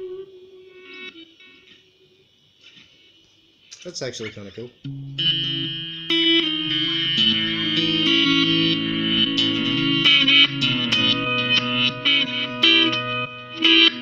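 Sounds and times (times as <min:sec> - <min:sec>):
electric guitar with delay: 0:04.9 - 0:14.0.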